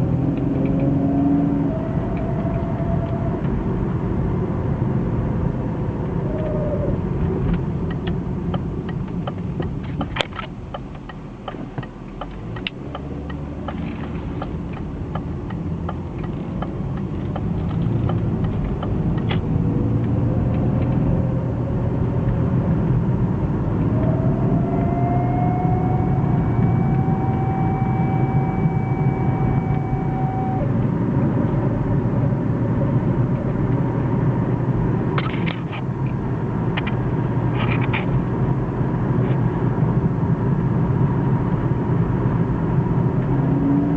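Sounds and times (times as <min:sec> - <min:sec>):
car road and drivetrain rumble: 0:00.0 - 0:43.9
thin whine: 0:23.8 - 0:30.8.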